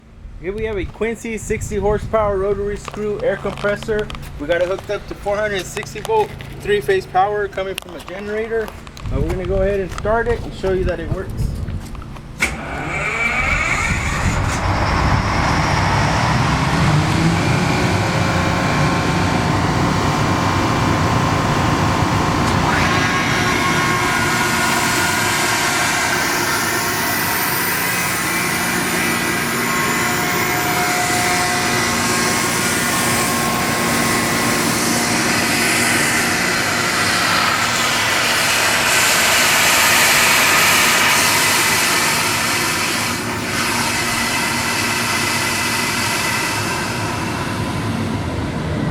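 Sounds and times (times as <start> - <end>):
air compressor droning: 12.0 - 48.9.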